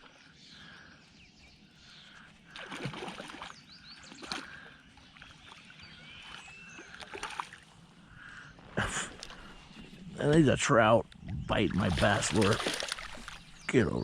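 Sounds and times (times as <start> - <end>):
water sloshing: 2.5 - 7.9, 11.5 - 13.7
fish splashing at water surface: 2.6 - 3.5, 11.8 - 13.5.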